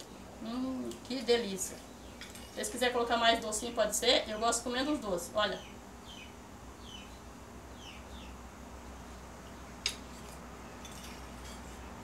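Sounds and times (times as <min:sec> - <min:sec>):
small bird chirping: 0:03.6 - 0:08.4.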